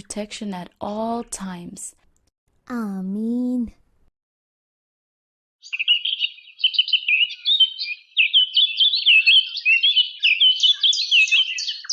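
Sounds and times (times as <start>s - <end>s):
songbirds chirping: 5.6s - 11.9s.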